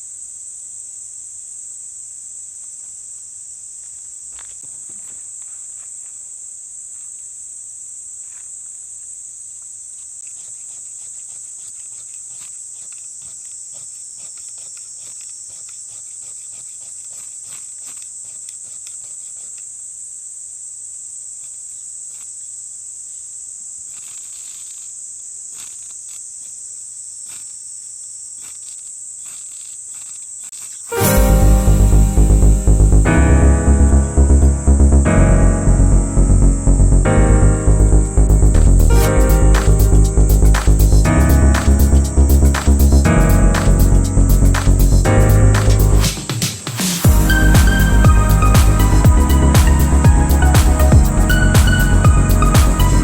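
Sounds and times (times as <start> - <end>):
insects chirping: 0.0 - 31.0, 38.0 - 53.0
loud music: 31.0 - 53.0.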